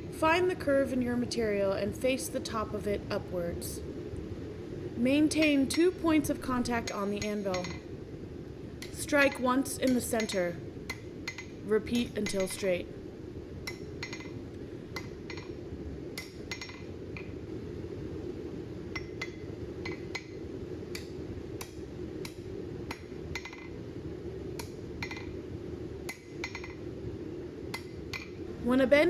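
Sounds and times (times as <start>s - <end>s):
low hum: 0.0s - 21.1s
hammer striking steel on anvil: 6.6s - 7.8s, 8.8s - 12.8s.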